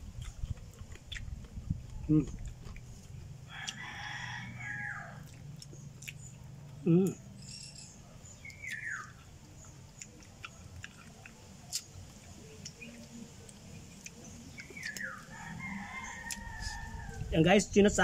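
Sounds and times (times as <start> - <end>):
chewing and sucking: 0.1 - 3.8, 5.2 - 6.3, 8.4 - 15.4
bird calls: 7.0 - 10.2, 14.0 - 16.7.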